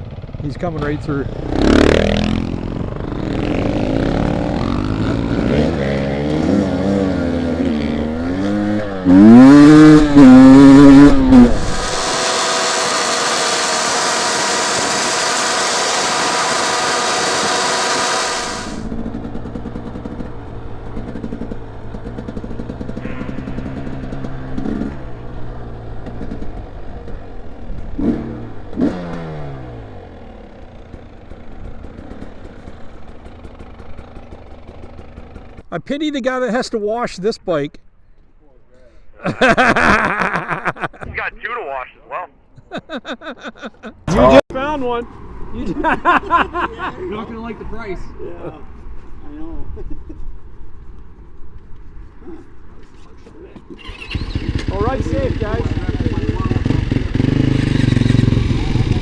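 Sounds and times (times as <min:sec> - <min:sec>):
dirt bike engine revving: 0:00.0 - 0:35.6, 0:53.7 - 0:59.0.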